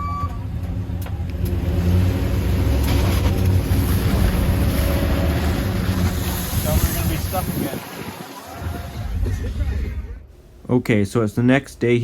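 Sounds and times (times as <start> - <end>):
vehicle engine revving in snow: 1.4 - 9.7.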